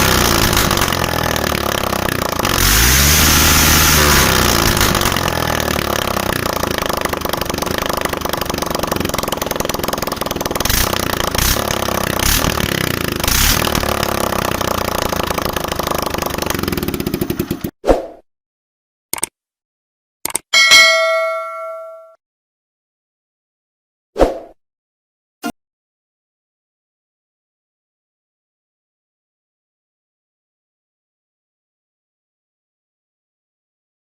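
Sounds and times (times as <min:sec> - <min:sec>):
exhaust cracks: 0:00.0 - 0:17.7.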